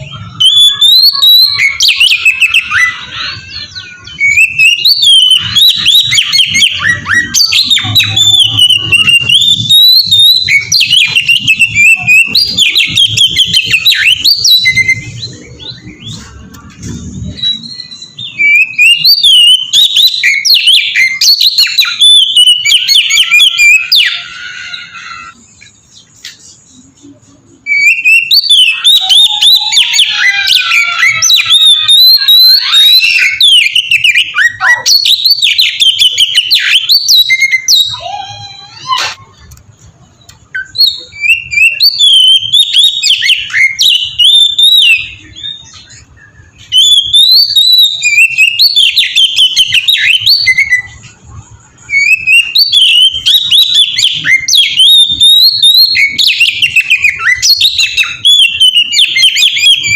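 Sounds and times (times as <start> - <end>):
songbird whistling rapid phrases: 0.0 - 59.9.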